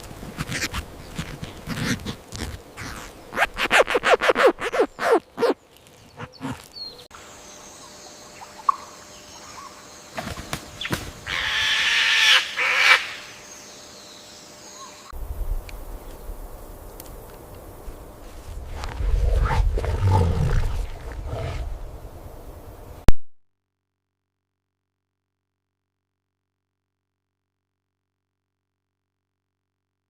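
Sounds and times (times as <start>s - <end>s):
fowl drawn-out call: 11.3s - 13.3s.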